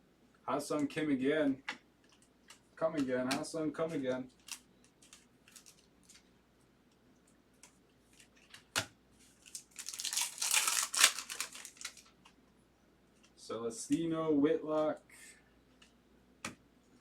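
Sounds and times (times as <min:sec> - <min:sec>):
foil wrapper tearing and crinkling: 0:04.4 - 0:05.9, 0:09.4 - 0:12.1.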